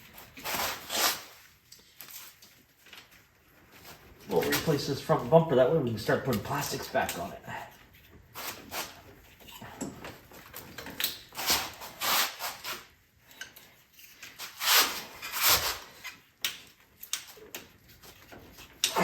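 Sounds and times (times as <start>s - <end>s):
tools clunking and rattling: 9.0s - 11.4s.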